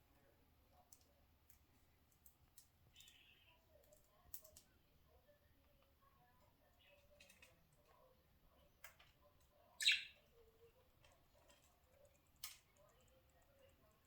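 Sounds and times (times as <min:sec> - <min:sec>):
budgie chirp: 0:09.8 - 0:10.2.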